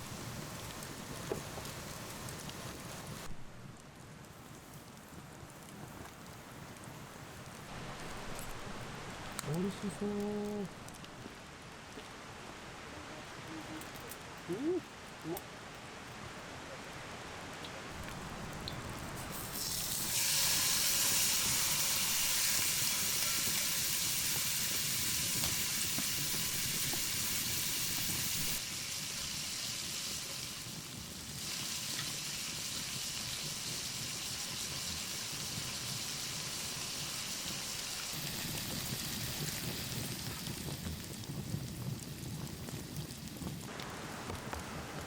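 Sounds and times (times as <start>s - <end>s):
meat sizzling: 17.9s - 43.8s.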